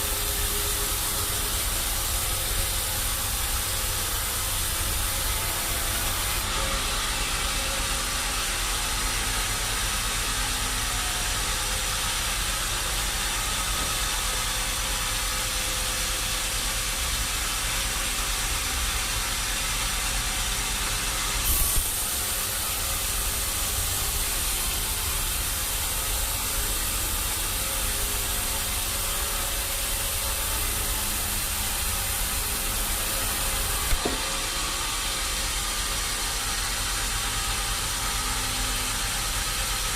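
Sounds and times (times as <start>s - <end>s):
machinery hissing and rumbling: 0.0s - 39.9s
knock: 33.9s - 34.3s.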